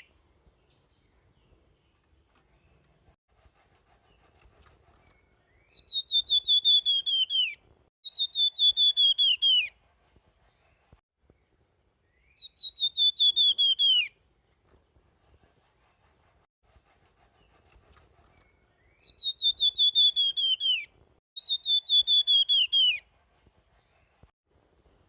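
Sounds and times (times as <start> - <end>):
bird singing whistled notes: 5.0 - 9.8, 12.0 - 14.2, 18.4 - 23.1.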